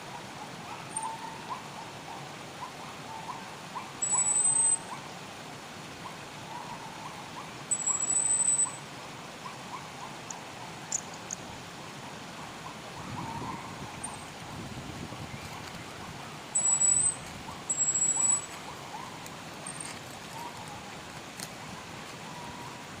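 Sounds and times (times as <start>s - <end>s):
running water hiss: 1.3s - 23.0s
high thin bird whistles: 4.0s - 4.8s, 7.7s - 8.8s, 16.6s - 18.5s
short rising bird chirps: 7.7s - 8.8s, 16.6s - 18.5s.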